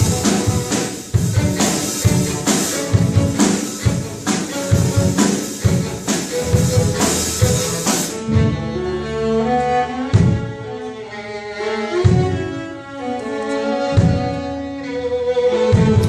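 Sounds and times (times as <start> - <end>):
drum beat: 0.0 - 8.2
string ensemble playing: 0.0 - 16.0.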